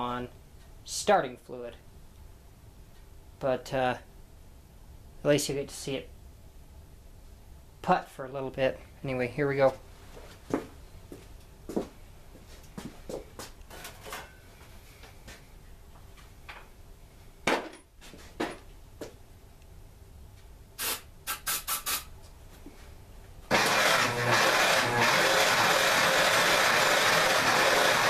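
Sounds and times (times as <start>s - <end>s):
short noisy bursts: 20.8s - 22.1s
loud engine without muffler: 23.5s - 28.0s.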